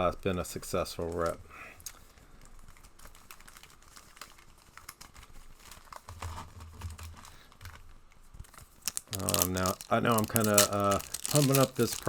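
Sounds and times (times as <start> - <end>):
wrappers crinkling: 1.0 - 6.2, 8.4 - 12.0
cards clicking and tapping: 8.9 - 12.0.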